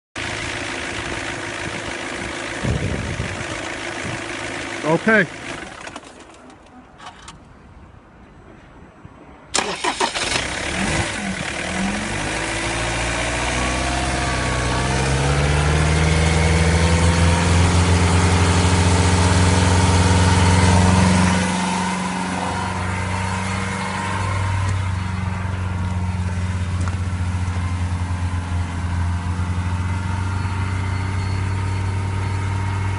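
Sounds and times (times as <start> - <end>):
diesel engine starting and idling: 0.2 - 7.5, 9.5 - 32.9.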